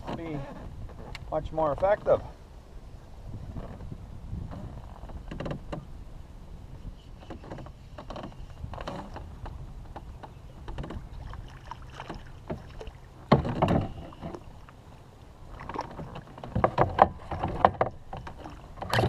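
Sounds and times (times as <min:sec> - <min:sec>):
water splashing: 0:10.8 - 0:19.0.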